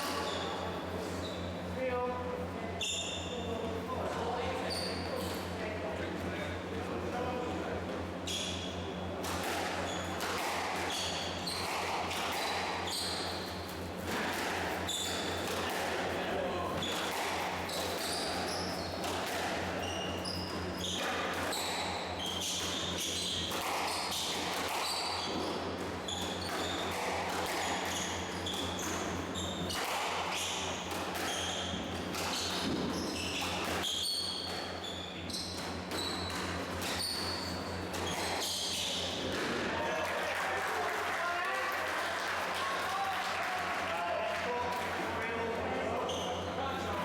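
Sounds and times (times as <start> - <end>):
shoes squeaking on court: 0.0 - 1.6, 4.5 - 5.6, 8.3 - 39.4, 45.9 - 47.0.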